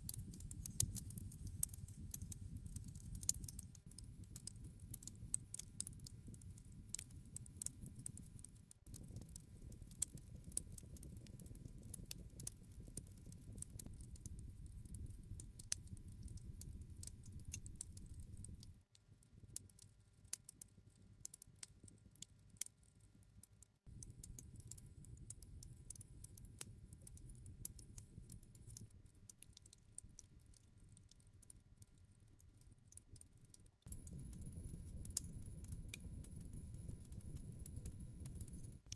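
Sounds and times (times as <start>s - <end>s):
campfire crackling: 0.0s - 18.6s
low rumble of flames: 0.0s - 18.7s, 33.9s - 38.9s.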